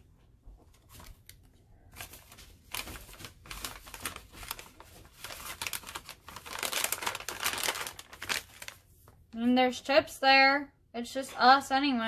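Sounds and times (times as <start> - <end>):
crinkling and rustling: 0.0 - 9.5.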